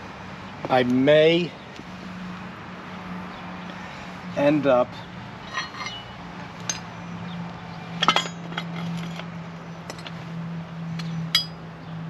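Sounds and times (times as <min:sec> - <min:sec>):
metal tools clinking: 0:05.4 - 0:06.9, 0:08.0 - 0:09.2.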